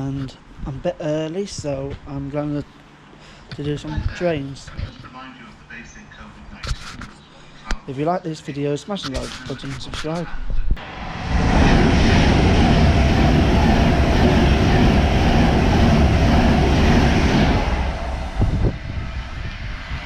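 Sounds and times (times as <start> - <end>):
electric train passing at speed: 10.8 - 20.0.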